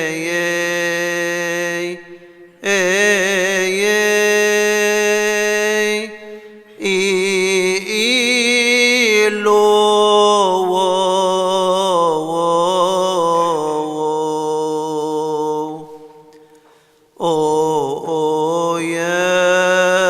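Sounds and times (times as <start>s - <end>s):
man singing hymn: 0.0s - 16.3s, 17.2s - 20.0s.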